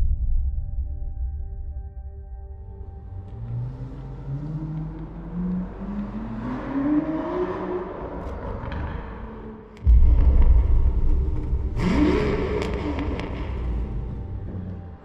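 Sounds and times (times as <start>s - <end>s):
car engine accelerating: 2.8s - 15.0s.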